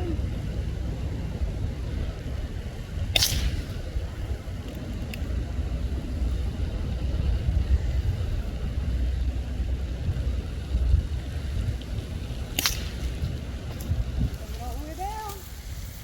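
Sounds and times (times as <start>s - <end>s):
steady low rumble: 0.0s - 16.0s
faint clicks: 4.6s - 5.4s.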